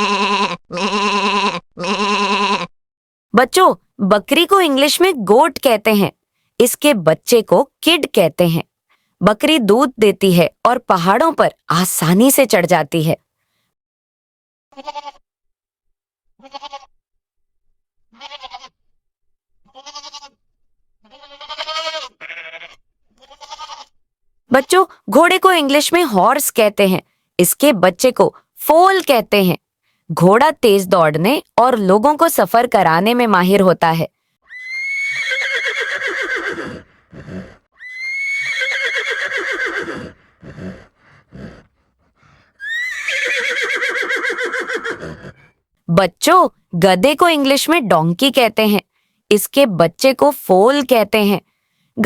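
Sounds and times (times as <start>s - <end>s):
goat bleating: 0.0s - 2.7s, 14.8s - 15.2s, 16.4s - 17.0s, 18.1s - 18.8s, 19.7s - 20.4s, 21.0s - 24.0s
horse whinnying: 34.5s - 41.7s, 42.6s - 45.5s
horse snorting: 35.1s - 37.7s, 38.4s - 45.6s.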